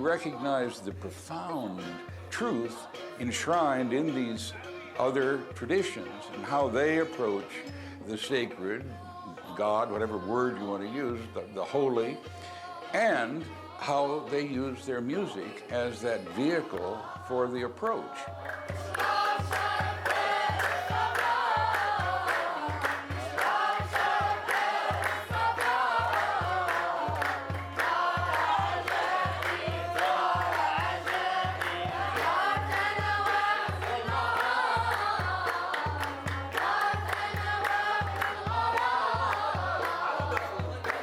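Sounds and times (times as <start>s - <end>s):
group of voices singing: 0.0s - 41.0s
sharp percussive strikes: 15.3s - 41.0s
steady drum beat: 16.3s - 41.0s.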